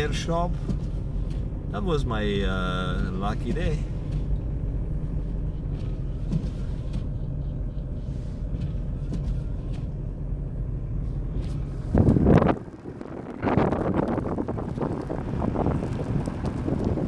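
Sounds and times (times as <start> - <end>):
car driving on snowy road: 0.0 - 17.0.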